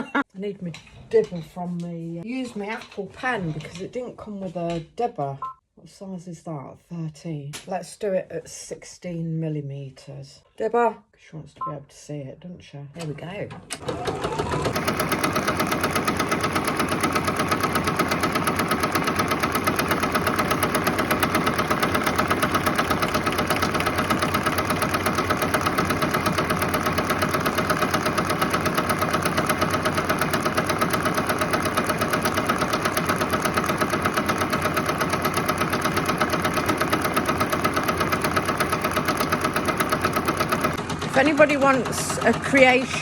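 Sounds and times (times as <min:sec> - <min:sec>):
embroidery machine stitching: 0:13.7 - 0:43.0.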